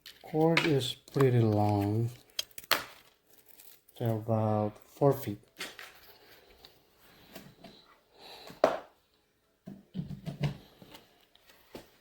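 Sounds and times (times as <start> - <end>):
soft handling rustling: 0.0 - 8.1.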